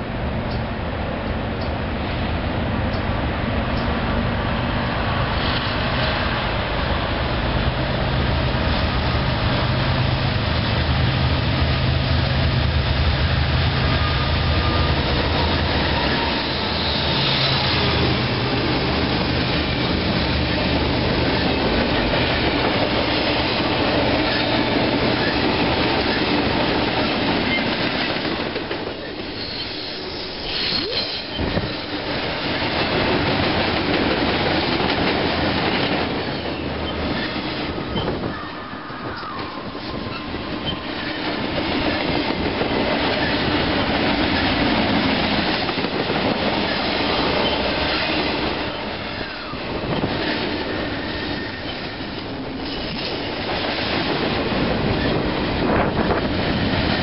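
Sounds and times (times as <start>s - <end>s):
diesel locomotive engine rumble: 0.0s - 57.0s
freight cars rolling on rails: 1.5s - 57.0s
high wheel squeal: 13.8s - 18.1s, 29.1s - 31.9s, 36.2s - 41.2s, 47.3s - 48.1s, 49.0s - 53.1s.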